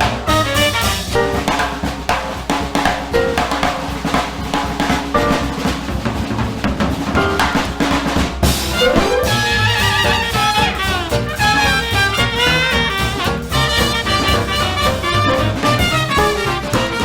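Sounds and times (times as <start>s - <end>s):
horns with sliding phrases: 0.0s - 1.5s, 8.6s - 17.0s
snare and bass drum: 0.0s - 17.0s
swing jazz band: 0.0s - 17.0s.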